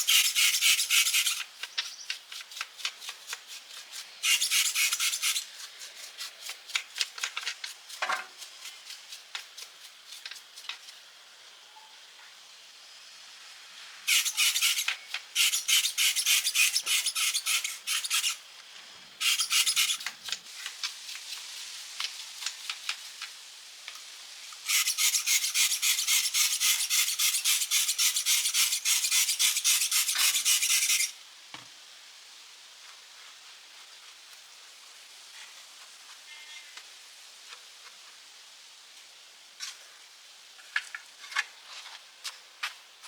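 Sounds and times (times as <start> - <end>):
file rasping on metal: 0.0 - 1.4, 3.0 - 5.5, 14.1 - 18.4, 19.2 - 20.1, 24.7 - 31.1.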